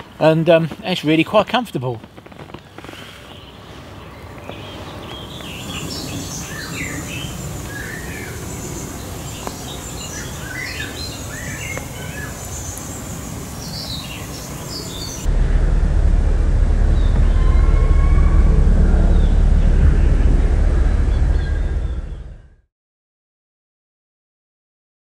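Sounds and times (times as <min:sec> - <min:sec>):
small birds chirping: 0:02.5 - 0:15.3
low background rumble: 0:14.3 - 0:22.6
loud low rumble: 0:14.8 - 0:22.7.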